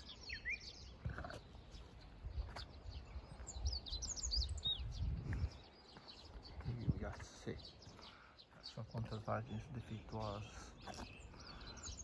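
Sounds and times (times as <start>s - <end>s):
small birds chirping: 0.0s - 12.0s
wind rumbling on microphone: 0.3s - 8.0s.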